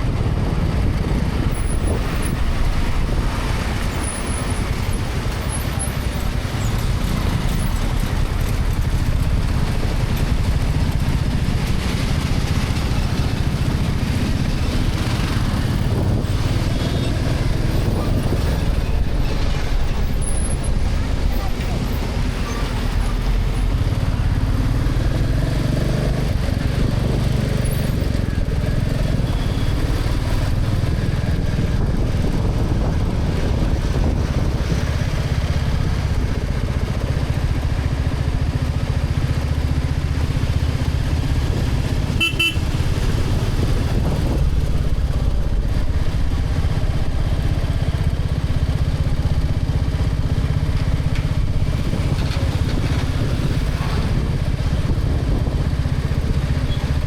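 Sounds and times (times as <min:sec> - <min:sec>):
motorcycle engine rumble: 0:00.0 - 0:57.0
vehicle horn toot: 0:42.1 - 0:42.8.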